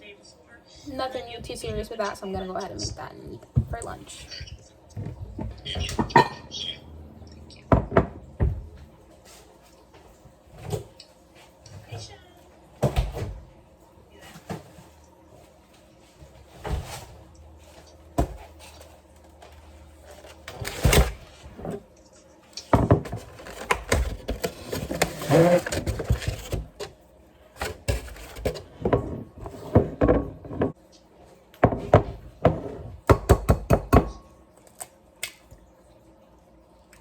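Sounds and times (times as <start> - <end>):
kitchen items knocking and clattering: 1.4 - 6.7, 7.6 - 9.0, 12.7 - 13.5, 17.8 - 21.9, 22.6 - 27.0, 27.6 - 30.8, 31.6 - 34.3.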